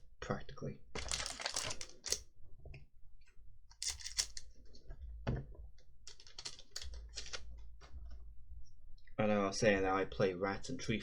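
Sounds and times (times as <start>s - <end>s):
trading cards rustling and clicking: 1.0s - 2.2s, 3.8s - 4.5s, 6.1s - 7.5s.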